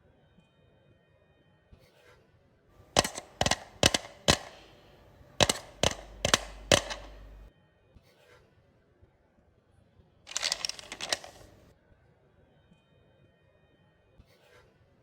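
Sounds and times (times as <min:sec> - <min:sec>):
sharp cracks with crackle: 0:02.8 - 0:07.5.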